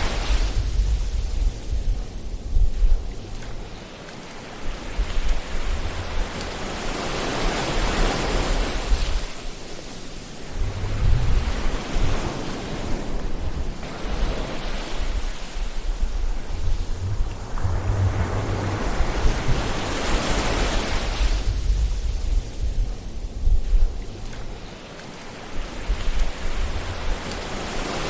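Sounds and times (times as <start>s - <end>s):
ocean waves washing in: 0.0s - 28.0s
low rumble: 10.5s - 12.2s, 15.1s - 24.7s.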